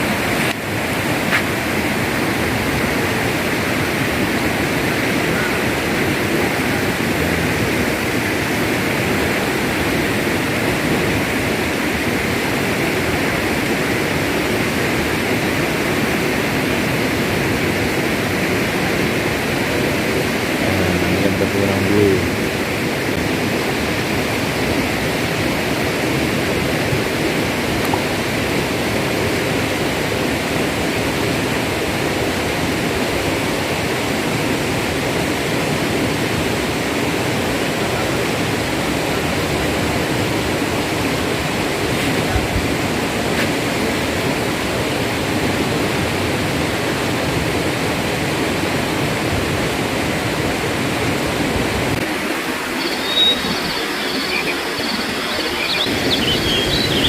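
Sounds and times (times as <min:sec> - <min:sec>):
river water rushing over rocks: 0:00.0 - 0:57.0
small birds chirping: 0:52.7 - 0:57.0.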